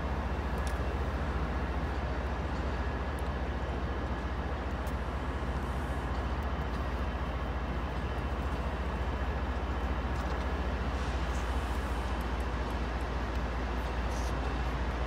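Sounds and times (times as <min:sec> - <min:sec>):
trains rumbling: 0:00.0 - 0:15.0.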